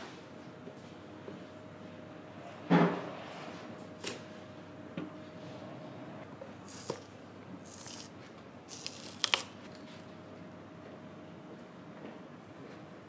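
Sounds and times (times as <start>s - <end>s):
scraping or cutting strokes: 6.6s - 9.8s.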